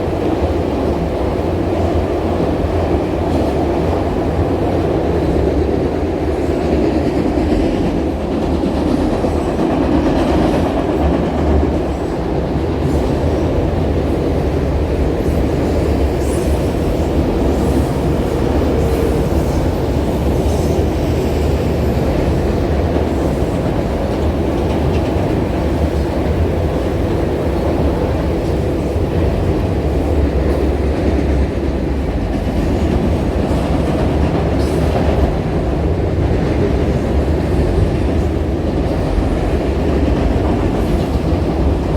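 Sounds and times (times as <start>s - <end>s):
train rumbling on rails: 0.0s - 41.9s.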